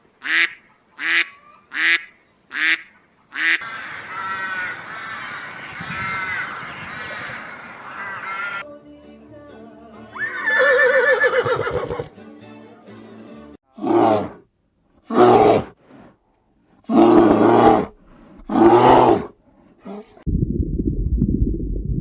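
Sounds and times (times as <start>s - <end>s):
background music: 8.6s - 13.6s
tiger roaring: 13.7s - 14.4s, 15.0s - 15.8s, 16.9s - 20.2s.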